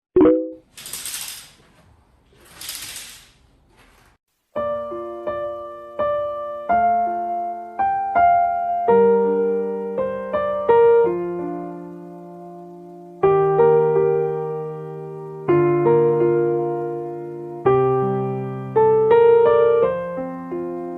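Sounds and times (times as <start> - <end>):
solo piano music: 4.5 - 20.9.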